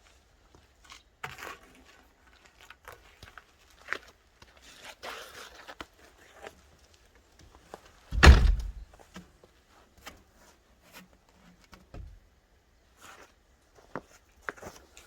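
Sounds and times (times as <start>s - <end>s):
heavy thunk with short ring: 8.2s - 8.8s.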